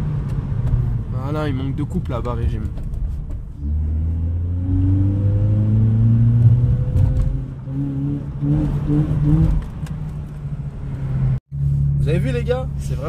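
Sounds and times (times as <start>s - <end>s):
car engine accelerating: 3.5s - 13.0s.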